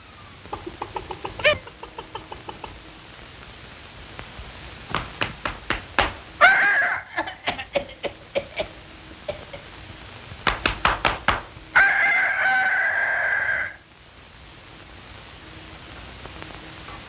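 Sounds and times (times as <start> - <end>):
sharp knocks: 4.9 - 6.2, 10.4 - 11.5
squawk-like call: 6.4 - 7.4, 11.8 - 13.8.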